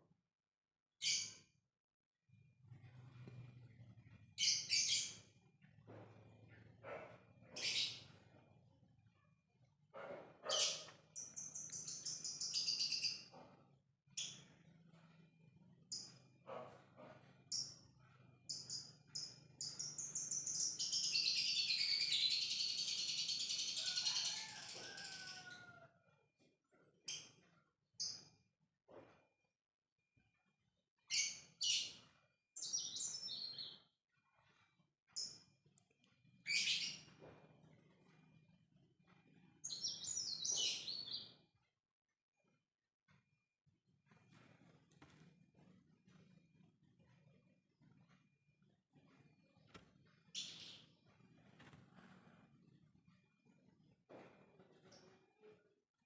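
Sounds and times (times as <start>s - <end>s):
lovebird chirping and chattering: 10.5s - 13.3s, 36.4s - 37.1s.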